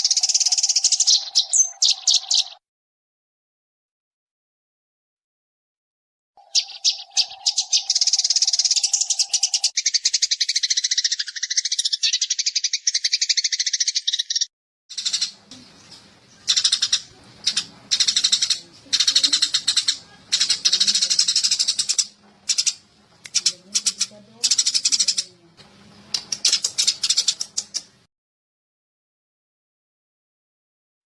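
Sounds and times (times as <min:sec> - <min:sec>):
sparrows chirping: 0:00.0 - 0:02.6, 0:06.4 - 0:28.1.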